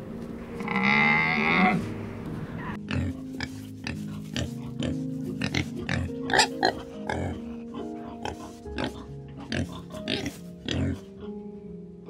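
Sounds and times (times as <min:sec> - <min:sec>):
wild boar grunting: 0:00.6 - 0:11.4.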